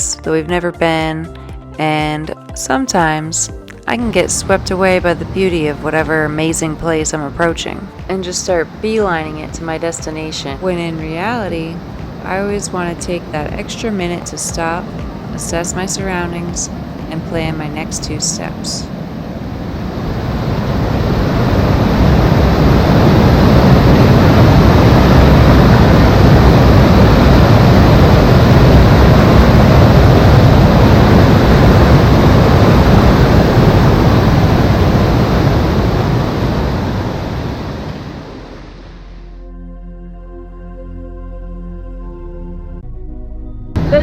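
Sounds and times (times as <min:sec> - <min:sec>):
waterfall rushing: 0:07.9 - 0:38.6.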